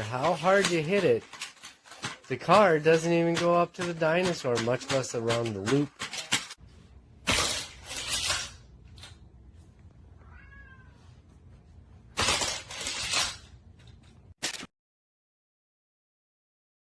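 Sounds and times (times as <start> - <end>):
plastic clattering and rattling: 0.0 - 6.6.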